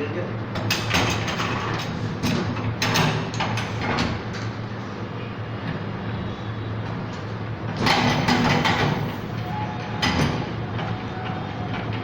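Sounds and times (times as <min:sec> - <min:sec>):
metal clanks and sliding knocks: 0:00.6 - 0:04.5, 0:07.7 - 0:12.0.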